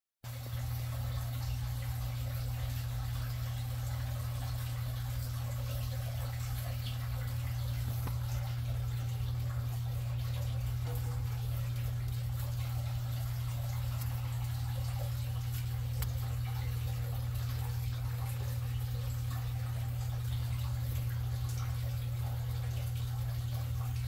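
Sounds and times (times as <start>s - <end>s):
steady low hum: 0.3s - 24.0s
water trickling and dripping: 0.3s - 24.0s
small ticks: 4.5s - 19.5s.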